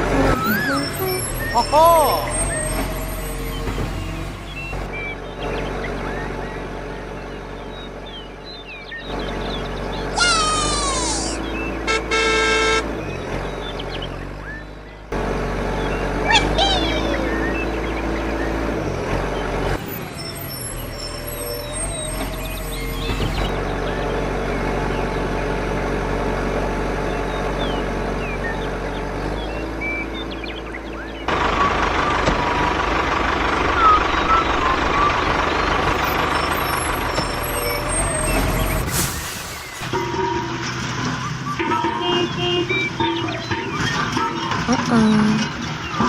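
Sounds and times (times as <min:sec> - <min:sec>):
faint high tone: 0:00.0 - 0:02.5
engine rumble: 0:00.0 - 0:46.0.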